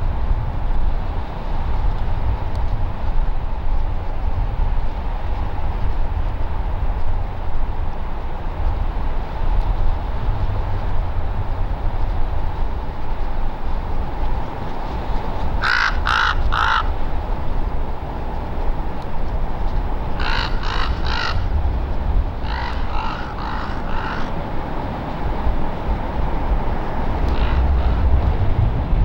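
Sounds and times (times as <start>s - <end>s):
low background rumble: 0.0s - 29.0s
crow cawing: 15.6s - 17.0s, 20.2s - 21.5s, 22.4s - 24.4s.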